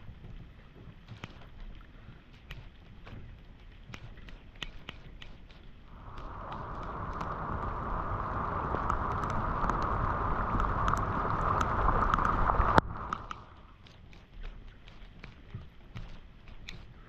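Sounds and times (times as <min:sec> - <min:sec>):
water trickling: 0:05.7 - 0:17.0
water rushing down a drain: 0:05.9 - 0:13.6.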